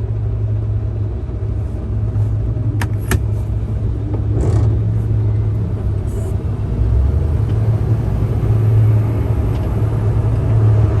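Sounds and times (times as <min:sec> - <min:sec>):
truck diesel engine rumbling: 0:00.0 - 0:11.0.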